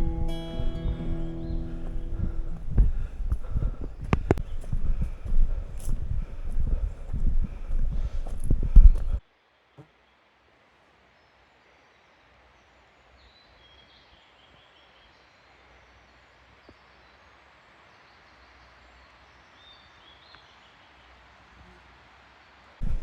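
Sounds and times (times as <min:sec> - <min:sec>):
birds chirping and trilling: 0:00.0 - 0:09.2
soft background hiss: 0:00.0 - 0:23.0.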